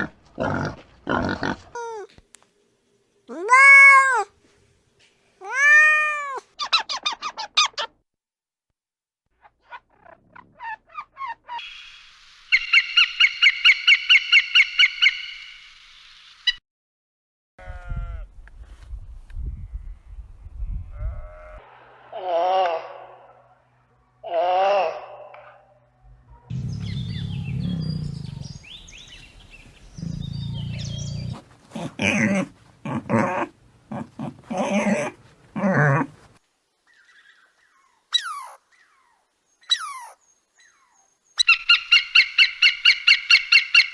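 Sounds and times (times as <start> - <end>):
bird calling: 9.7 - 15.6, 36.9 - 43.9
steady hiss: 11.6 - 13.4, 15.4 - 16.6
loud high-pitched animal calls: 24.2 - 25.6
animal growling: 26.5 - 28.7, 29.9 - 36.1.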